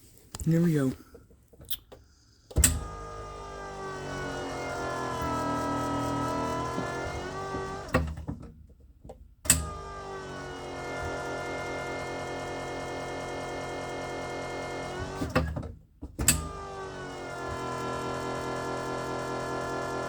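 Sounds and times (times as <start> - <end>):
electric pump whining: 2.5 - 8.2, 9.5 - 15.4, 16.2 - 20.0.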